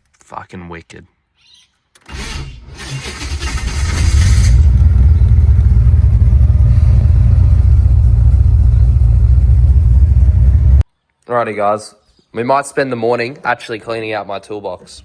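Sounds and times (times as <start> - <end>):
car engine deep rumble: 3.2 - 10.8.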